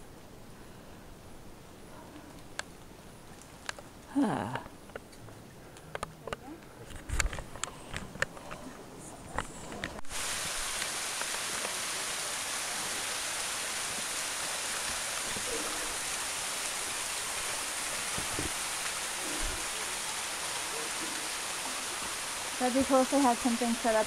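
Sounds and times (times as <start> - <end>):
waterfall rushing: 10.1 - 24.0.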